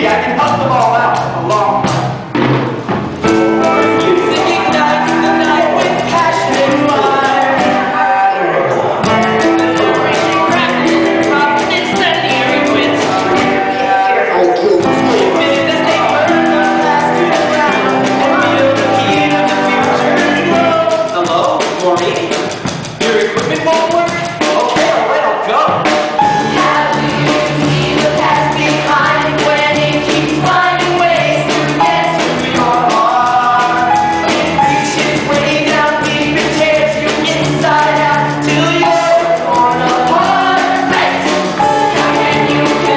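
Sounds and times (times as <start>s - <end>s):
sung vocals: 0.0s - 2.2s, 3.3s - 42.9s
rock band with drum kit: 0.0s - 42.9s
steady bass line: 0.0s - 42.9s.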